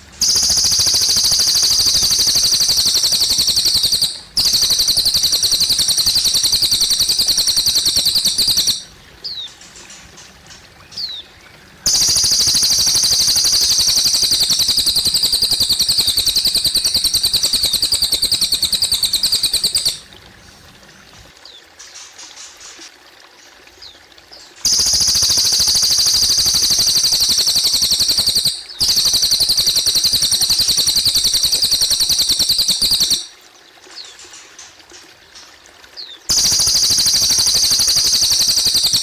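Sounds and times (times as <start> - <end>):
water trickling: 0.0 - 39.0
bird singing fast high trill: 0.2 - 9.5, 11.9 - 20.1, 24.7 - 33.3, 36.3 - 39.0.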